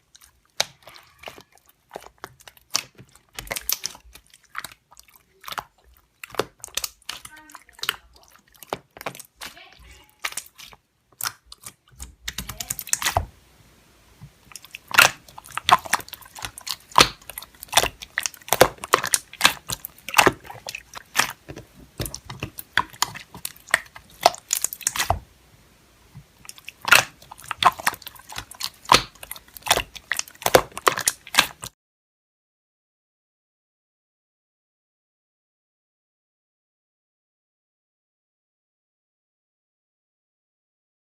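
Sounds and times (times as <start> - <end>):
slime squished by hand: 0.0 - 13.4, 14.2 - 25.4, 26.1 - 31.8.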